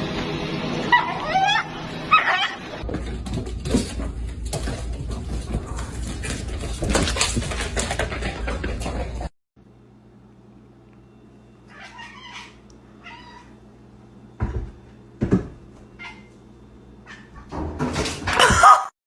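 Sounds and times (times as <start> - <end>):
cat meowing: 11.7 - 13.6.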